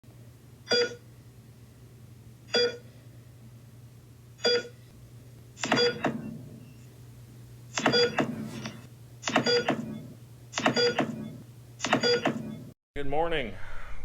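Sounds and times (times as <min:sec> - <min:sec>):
steady low hum: 0:00.1 - 0:12.8
short electronic beeps: 0:02.6 - 0:02.8, 0:04.4 - 0:04.7, 0:05.6 - 0:06.1, 0:07.8 - 0:08.7, 0:09.3 - 0:12.7.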